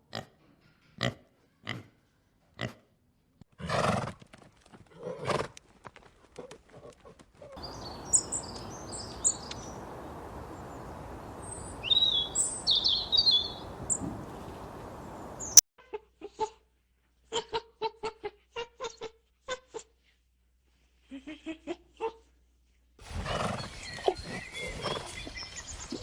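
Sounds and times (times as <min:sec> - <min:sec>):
birds chirping: 0:07.6 - 0:15.6
steady background hiss: 0:07.6 - 0:15.6.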